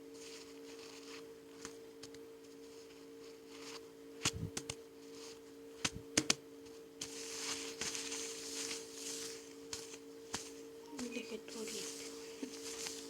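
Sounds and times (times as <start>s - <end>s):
faint two-tone hum: 0.0s - 13.0s
rustling: 7.0s - 13.0s.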